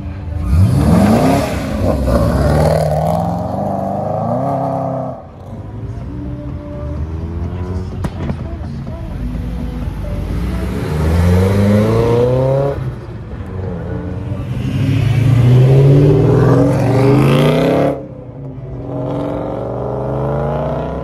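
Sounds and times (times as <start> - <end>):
cars accelerating hard: 0.0 - 5.6, 10.2 - 21.0.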